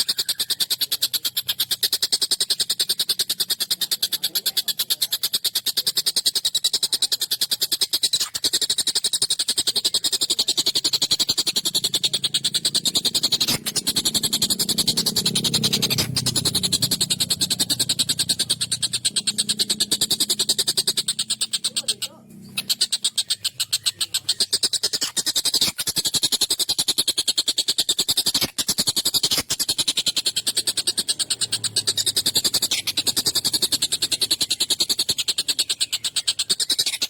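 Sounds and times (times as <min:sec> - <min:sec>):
kingfisher chattering rattle: 0:00.0 - 0:37.0.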